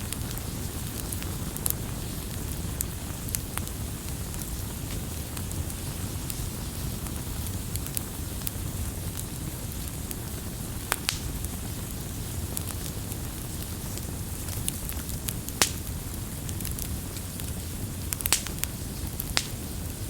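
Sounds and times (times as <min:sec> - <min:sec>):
fire popping: 0:00.0 - 0:20.0
wood fire crackling: 0:00.0 - 0:20.0.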